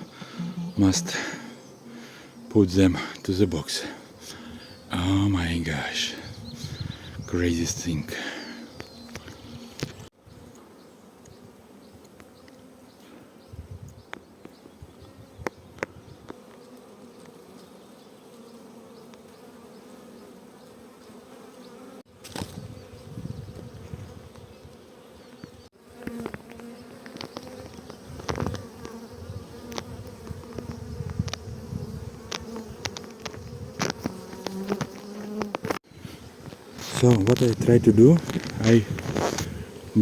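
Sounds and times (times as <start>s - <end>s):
bee swarm buzzing: 0.0s - 13.7s, 14.5s - 40.0s
knocks and crackles: 32.2s - 35.8s.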